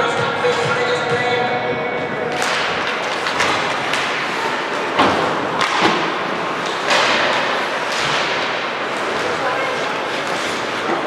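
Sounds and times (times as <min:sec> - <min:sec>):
arena noise: 0:00.0 - 0:11.0
puck and sticks hitting boards: 0:02.3 - 0:11.0.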